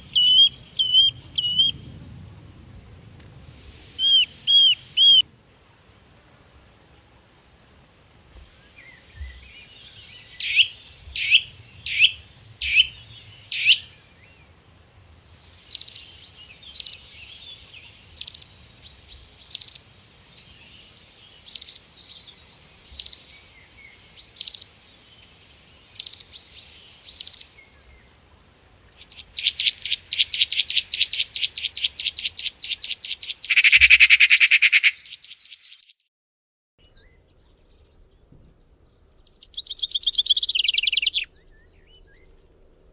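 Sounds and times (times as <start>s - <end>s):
songbirds whistling: 0.0s - 2.0s, 3.9s - 5.2s, 8.6s - 14.4s, 15.6s - 19.8s, 20.6s - 24.7s, 25.8s - 28.2s, 28.9s - 35.9s, 36.8s - 42.4s
soft bird chatter: 8.4s - 14.7s, 15.4s - 35.9s, 36.8s - 42.4s
rapid bird trill: 9.3s - 13.9s, 15.7s - 17.1s, 17.9s - 18.6s, 19.5s - 19.8s, 21.4s - 21.9s, 22.9s - 23.3s, 24.2s - 24.7s, 25.9s - 26.3s, 27.1s - 27.6s, 29.0s - 35.9s.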